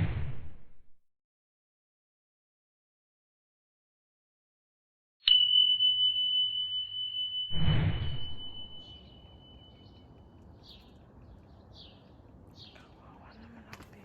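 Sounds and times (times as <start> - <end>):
high bell-like ding: 5.2 - 10.0.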